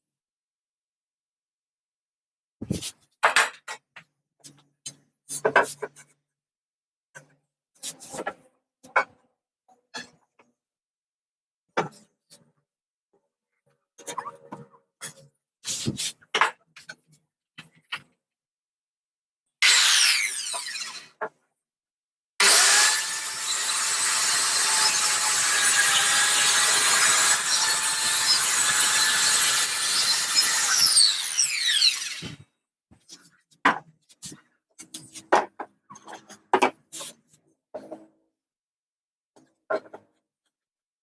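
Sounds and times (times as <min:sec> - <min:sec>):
circular saw cutting wood: 0:19.6 - 0:21.1, 0:22.4 - 0:32.4.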